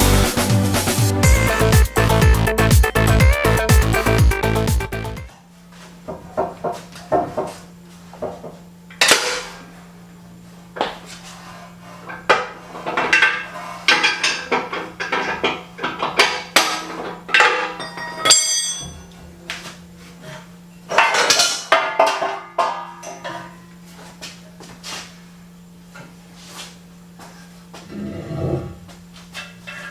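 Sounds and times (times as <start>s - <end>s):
metal tools clinking and clattering: 12.9s - 19.1s
bright ringing metal clink: 17.4s - 19.2s.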